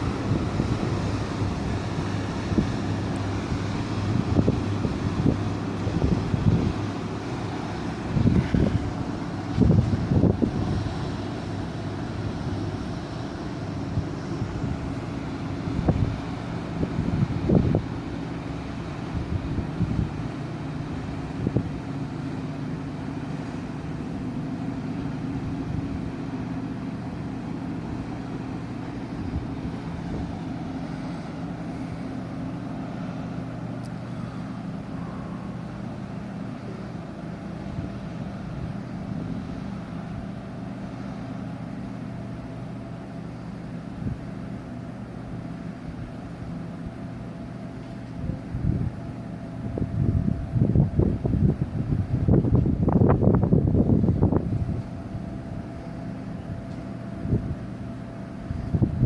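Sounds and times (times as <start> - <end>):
wind gusts on microphone: 0.0 - 20.4, 48.1 - 55.8, 58.4 - 59.0
ship engines low drone: 0.0 - 59.0.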